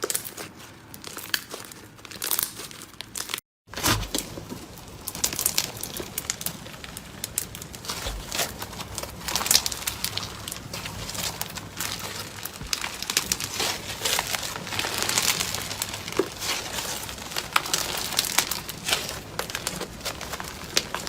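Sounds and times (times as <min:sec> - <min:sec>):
slime squishing with crackling clicks: 0:05.0 - 0:21.0.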